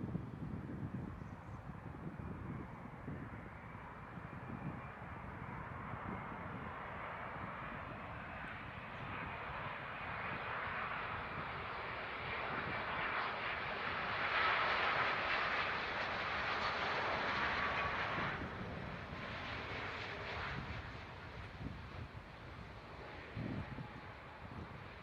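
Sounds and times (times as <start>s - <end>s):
faint jet engine whine: 0.0s - 25.0s
jet engines rushing past: 1.8s - 25.0s.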